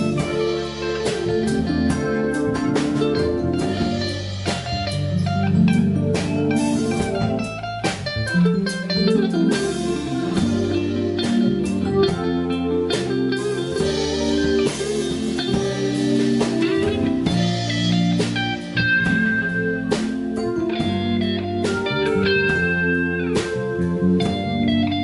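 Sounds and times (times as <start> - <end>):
drum kit with cymbals: 0.0 - 25.0
guitar melody: 0.0 - 25.0.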